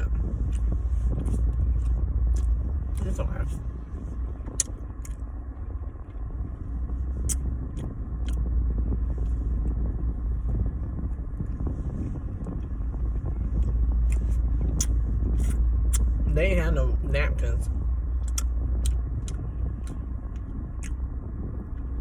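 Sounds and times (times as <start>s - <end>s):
car cabin rumble: 0.0s - 22.0s
chewing doughnut: 7.2s - 8.5s, 13.6s - 16.1s, 18.2s - 21.0s.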